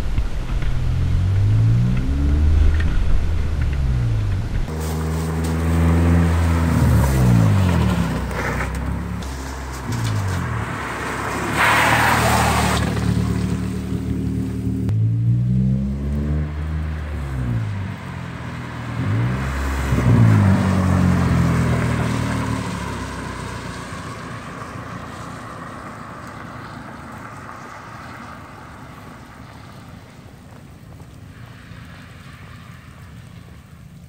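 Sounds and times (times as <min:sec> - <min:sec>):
car engine accelerating away: 0:00.2 - 0:26.8
tyre hiss on wet road: 0:04.7 - 0:14.5, 0:16.6 - 0:34.0.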